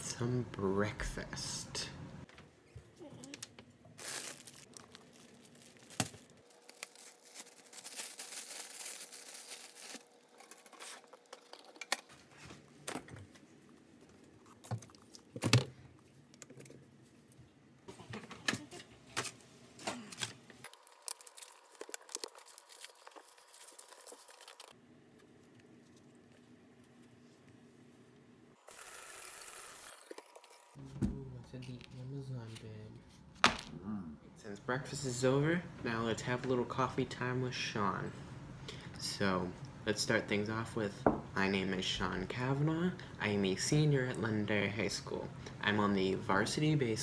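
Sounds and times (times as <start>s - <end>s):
plastic packaging crinkling: 4.0s - 11.8s, 20.6s - 24.8s.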